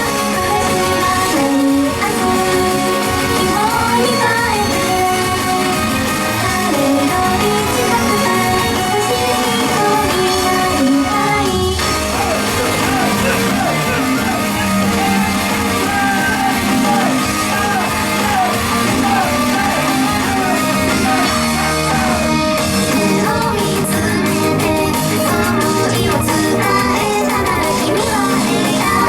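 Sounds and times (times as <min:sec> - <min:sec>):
live pop song: 0:00.0 - 0:29.0
group singing: 0:06.4 - 0:29.0.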